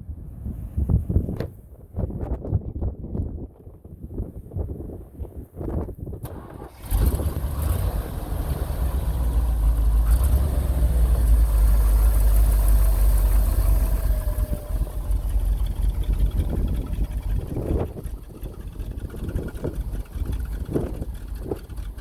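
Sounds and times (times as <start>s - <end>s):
truck engine running: 6.3s - 22.0s.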